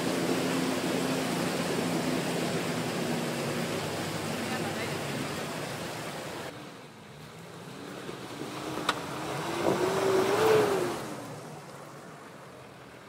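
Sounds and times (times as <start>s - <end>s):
car engine revving: 7.6s - 11.3s.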